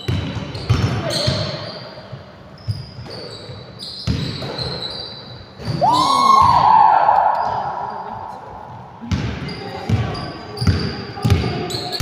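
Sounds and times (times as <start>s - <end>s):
loud high squeal: 4.6s - 8.8s
basketball bouncing on wooden floor: 9.1s - 11.7s.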